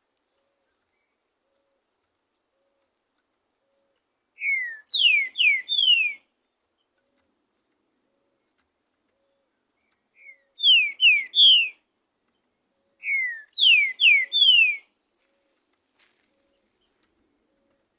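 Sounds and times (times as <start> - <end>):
bird whistling downward notes: 4.4 - 6.2, 10.2 - 11.8, 13.0 - 14.8.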